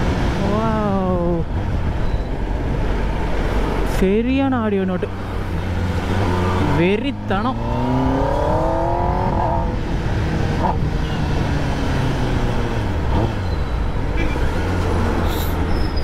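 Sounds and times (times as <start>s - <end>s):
motorcycle engine revving: 5.6s - 13.6s.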